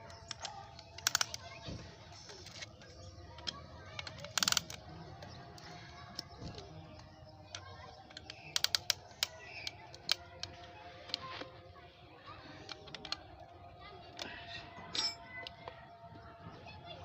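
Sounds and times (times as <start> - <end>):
metallic clicks of hand tools: 3.4 - 4.8, 14.9 - 15.3.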